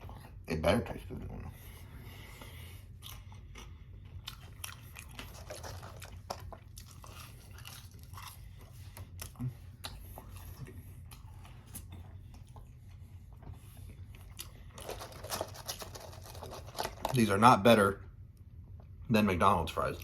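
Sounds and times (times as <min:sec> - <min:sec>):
chewing french fries: 0:00.0 - 0:17.6
steady low hum: 0:00.0 - 0:20.0.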